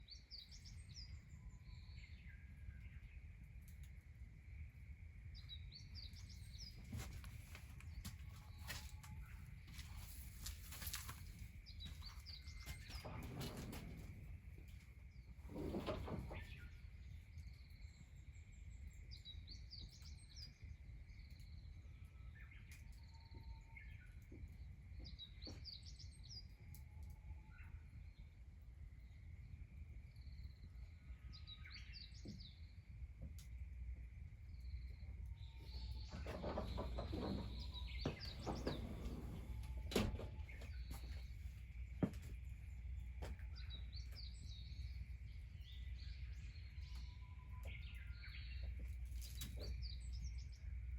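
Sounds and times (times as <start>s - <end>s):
songbirds chirping: 0.0s - 50.9s
rustling and clattering: 6.6s - 16.7s, 35.7s - 42.4s.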